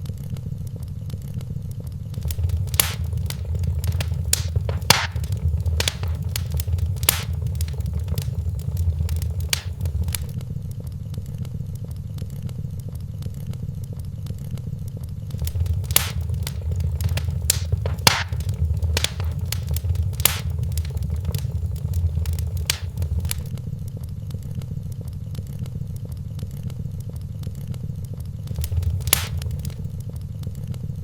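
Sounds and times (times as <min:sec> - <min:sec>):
fire rumbling: 0:02.2 - 0:10.4, 0:15.3 - 0:23.5, 0:28.5 - 0:30.0
wood fire crackling and popping: 0:02.2 - 0:10.4, 0:15.3 - 0:23.5, 0:28.5 - 0:30.0.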